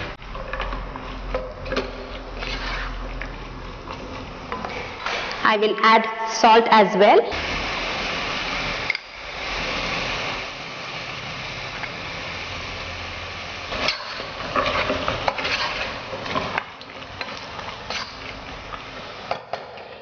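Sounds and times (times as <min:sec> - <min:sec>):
vegetables sizzling in a pot: 0:00.0 - 0:20.0
spatula scraping a pot: 0:02.3 - 0:03.2, 0:13.8 - 0:16.1.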